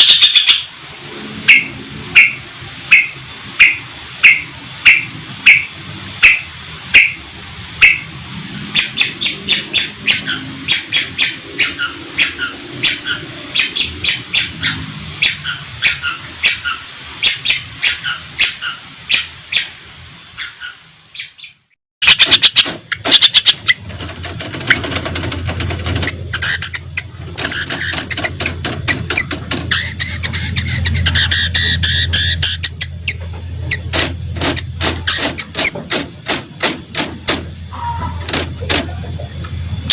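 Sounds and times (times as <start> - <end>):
low hum: 23.5 - 39.9
shrike calling harshly: 37.7 - 38.7.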